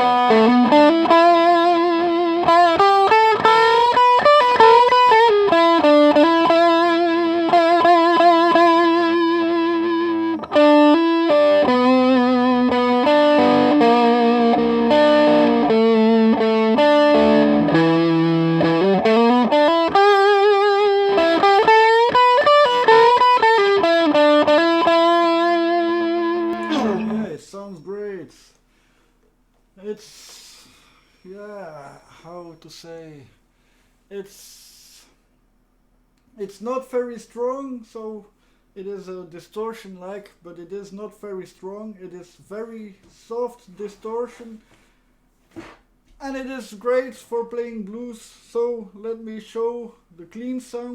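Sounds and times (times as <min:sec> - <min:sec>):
overdriven electric guitar lead: 0:00.0 - 0:27.4.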